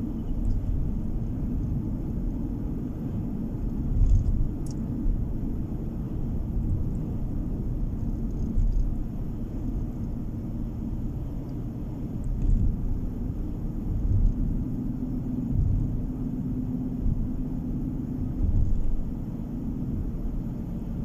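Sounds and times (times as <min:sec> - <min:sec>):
car road and engine rumble: 0:00.0 - 0:21.0
faint ticks: 0:03.6 - 0:04.9, 0:08.0 - 0:09.0, 0:12.2 - 0:12.7.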